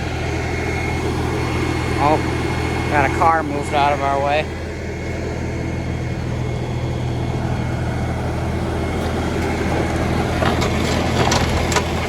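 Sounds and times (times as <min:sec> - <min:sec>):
tractor diesel engine running: 0:00.0 - 0:12.0
gravel scraping: 0:09.0 - 0:12.0.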